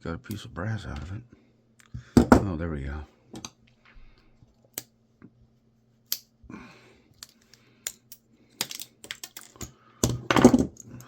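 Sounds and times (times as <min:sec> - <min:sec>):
switch parts clicking and rattling: 0:07.2 - 0:11.0.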